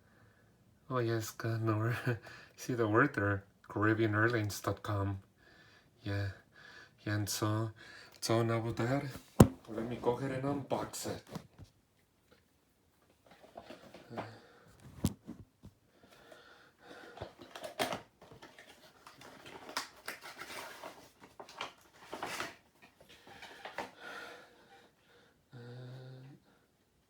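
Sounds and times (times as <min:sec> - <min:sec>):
packaging rustling and scraping: 0:17.0 - 0:24.0.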